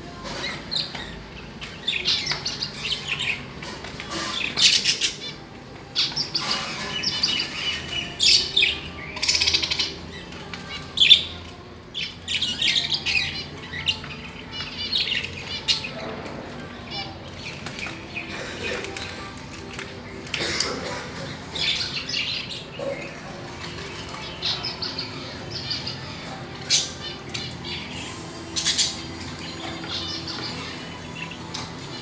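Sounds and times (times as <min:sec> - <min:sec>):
lovebirds chirping and squawking: 0:00.0 - 0:32.0.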